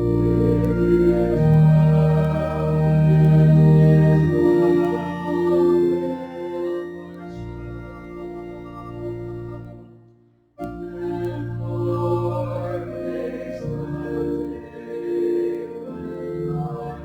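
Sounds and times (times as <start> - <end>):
organ playing hymn chords: 0.0 - 17.0
voices singing along: 10.8 - 17.0.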